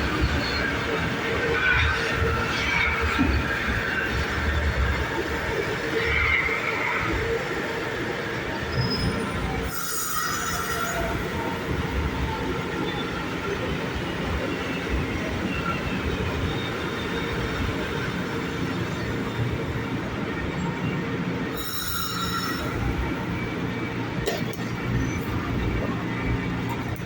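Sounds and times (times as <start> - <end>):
train wheels rumbling on rail: 0.0 - 27.0
high-pitched wheel squeals: 8.5 - 19.5, 21.4 - 23.4.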